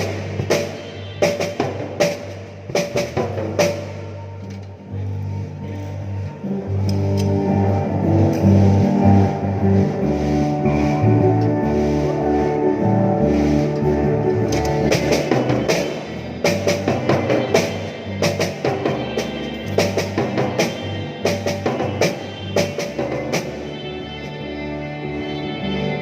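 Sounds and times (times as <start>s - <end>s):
drum kit playing: 0.0s - 4.3s, 7.6s - 23.8s
bass and keyboard notes: 0.0s - 26.0s.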